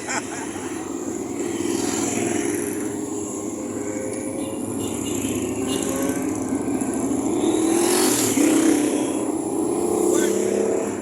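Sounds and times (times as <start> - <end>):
motorcycle engines running: 0.0 - 11.0
motorcycle engine revving: 1.0 - 3.5, 5.2 - 11.0.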